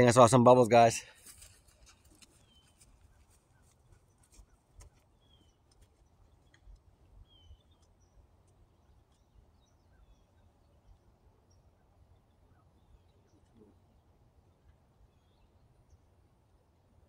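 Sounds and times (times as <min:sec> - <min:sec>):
faint ticks: 0:01.3 - 0:06.9
faint high bird chirps: 0:02.3 - 0:16.2.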